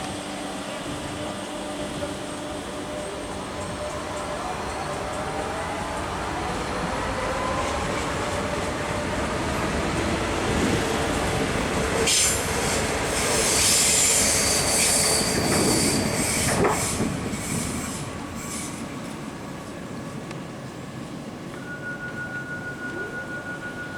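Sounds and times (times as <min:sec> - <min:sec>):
train running on track: 0:00.0 - 0:23.9
train wheels squealing: 0:12.0 - 0:19.2, 0:21.6 - 0:23.9.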